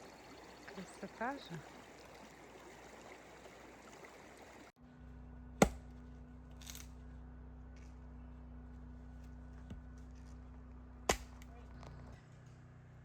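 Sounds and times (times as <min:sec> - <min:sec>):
mountain river rushing: 0:00.0 - 0:04.8
low steady hum: 0:00.0 - 0:13.0.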